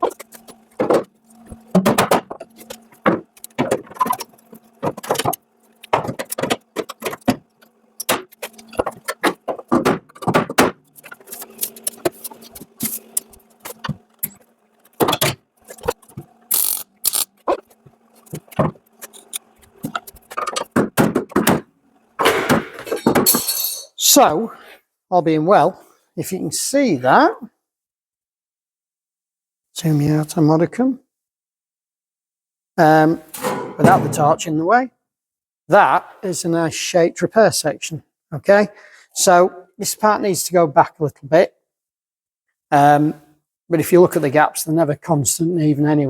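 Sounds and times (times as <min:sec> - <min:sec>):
welder crackling: 0:00.0 - 0:20.8.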